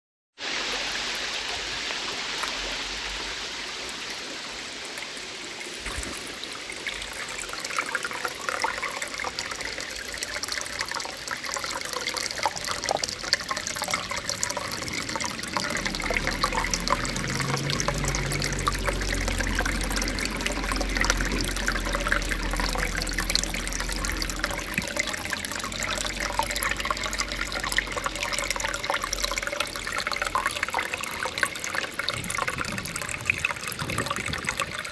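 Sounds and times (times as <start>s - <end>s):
waterfall splashing onto rock: 0.4s - 34.9s
low rumble: 13.2s - 28.6s.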